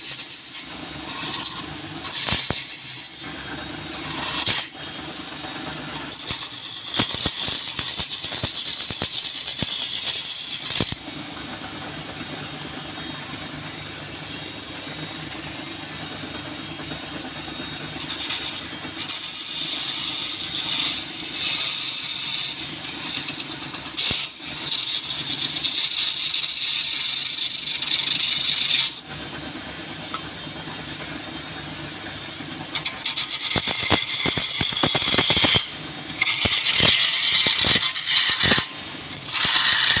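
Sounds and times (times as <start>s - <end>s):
turning tool scraping wood: 0.0s - 12.4s, 17.4s - 29.2s, 32.6s - 40.0s
wood lathe humming: 0.0s - 40.0s.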